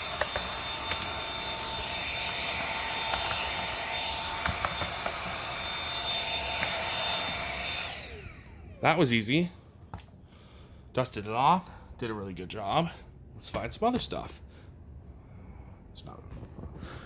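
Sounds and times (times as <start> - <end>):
handheld vacuum whining: 0.0 - 10.1.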